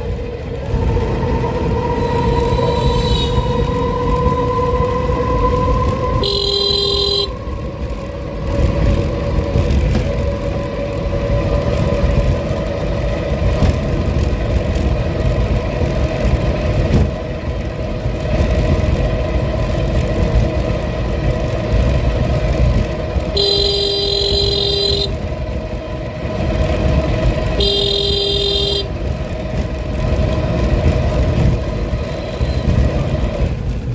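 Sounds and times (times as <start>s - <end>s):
road rumble: 0.0s - 33.9s
vehicle engine running: 0.0s - 33.9s
car horn honking: 2.3s - 3.7s, 6.1s - 7.5s, 23.3s - 25.2s, 27.6s - 29.0s.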